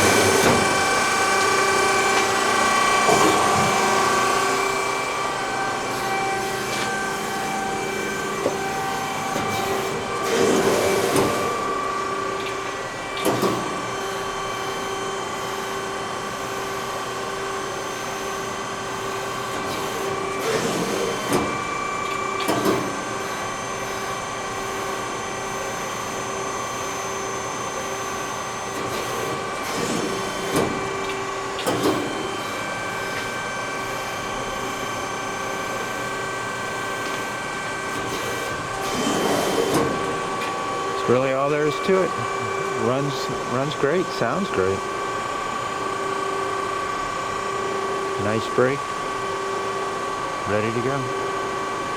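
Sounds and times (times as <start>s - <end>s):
hydraulic pump humming: 0.0s - 51.9s.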